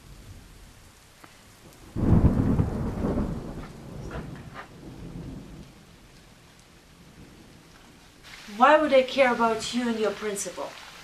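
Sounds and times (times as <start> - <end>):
steady rain: 0.0 - 11.0
thunderclap rumble: 1.6 - 9.8.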